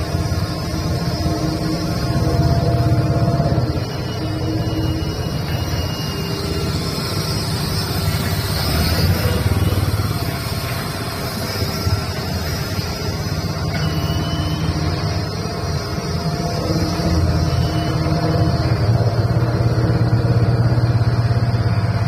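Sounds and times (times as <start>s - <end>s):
road roller diesel engine running: 0.0s - 22.0s.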